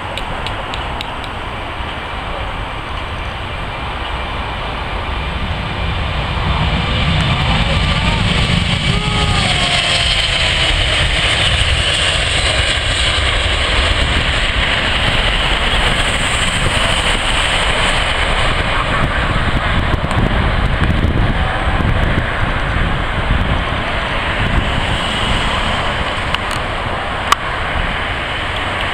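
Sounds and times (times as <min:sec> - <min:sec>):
jet engines roaring: 0:00.0 - 0:28.9
wind buffeting microphone: 0:00.0 - 0:28.9.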